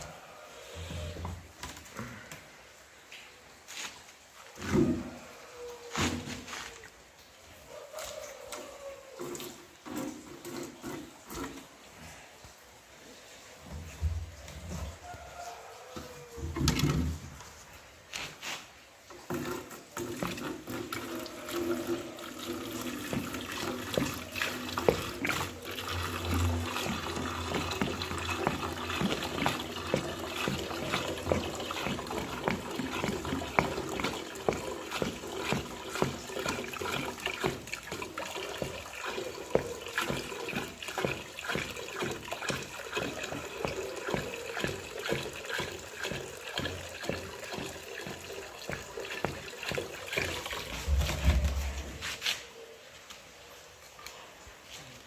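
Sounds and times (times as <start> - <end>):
water running and splashing: 2.8 - 52.4
water drips: 19.0 - 52.0.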